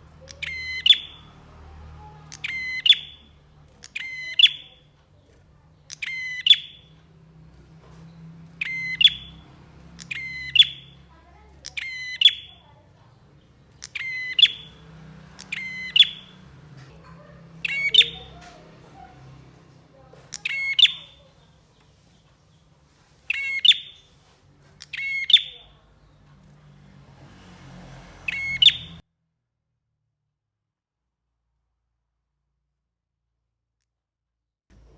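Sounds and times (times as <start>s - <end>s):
bird chattering calls: 0.1s - 1.4s, 2.1s - 4.9s, 5.7s - 7.0s, 8.5s - 21.6s, 23.3s - 24.1s, 24.8s - 25.8s, 28.2s - 29.0s.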